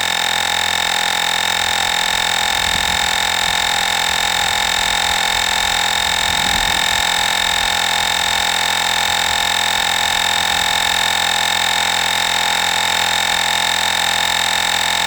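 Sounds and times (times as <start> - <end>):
air compressor humming buzz: 0.0 - 15.0.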